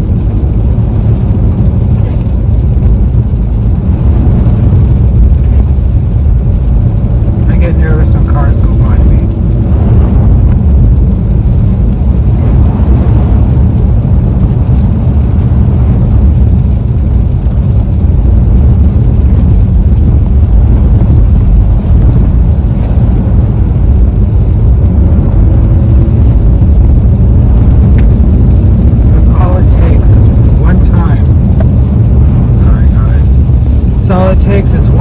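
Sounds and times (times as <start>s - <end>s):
car engine: 0.0s - 35.0s.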